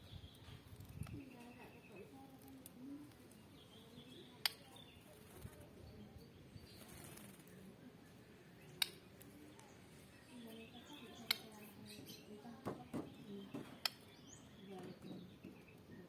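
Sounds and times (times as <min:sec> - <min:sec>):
sharp clicks: 0:08.8 - 0:09.3.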